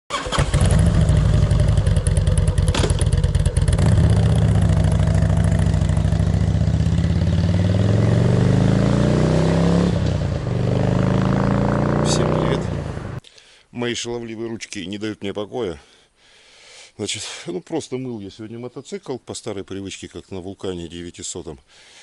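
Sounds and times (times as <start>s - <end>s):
motorcycle engine revving: 0.1s - 13.2s.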